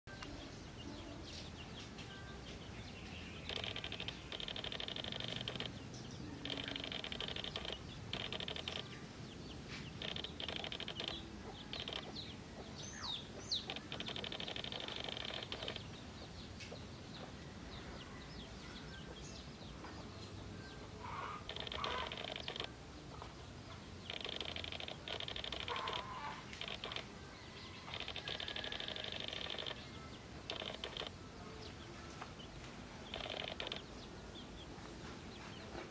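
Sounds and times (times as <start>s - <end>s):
small birds chirping: 0.1s - 35.9s
rapid bird trills: 3.2s - 16.0s, 20.9s - 31.2s, 33.0s - 34.2s.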